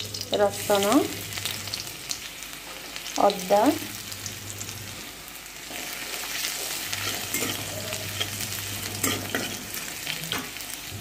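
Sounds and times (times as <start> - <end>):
garlic sizzling in hot oil: 0.0 - 11.0
spatula stirring and scraping: 5.6 - 10.6.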